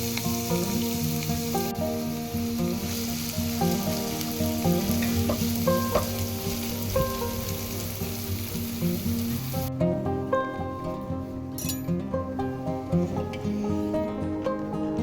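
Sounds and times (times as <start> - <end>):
food sizzling in a frying pan: 0.0 - 9.7
plucked background music: 0.0 - 15.0.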